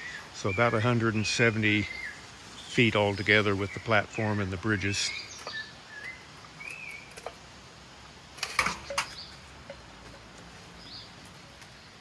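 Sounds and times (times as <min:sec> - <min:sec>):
whistled bird calls: 0:00.0 - 0:07.2.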